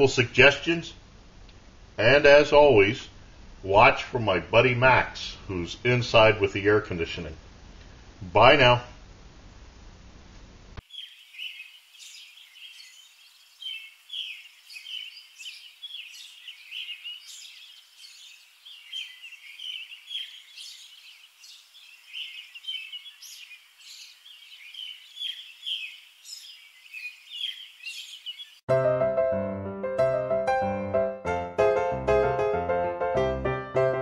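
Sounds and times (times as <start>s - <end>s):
small birds chirping: 10.8s - 28.7s.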